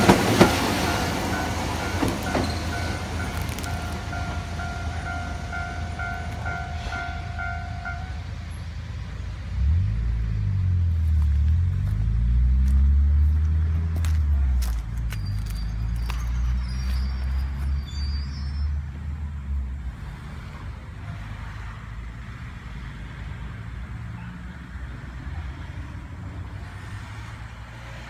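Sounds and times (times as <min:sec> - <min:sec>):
train rumbling: 0:00.0 - 0:21.8.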